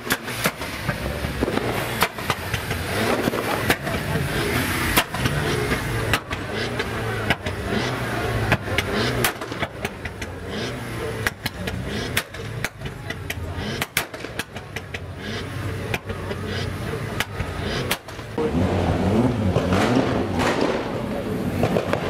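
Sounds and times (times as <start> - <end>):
car engine idling: 0.0 - 22.0
sharp cracks: 0.0 - 22.0.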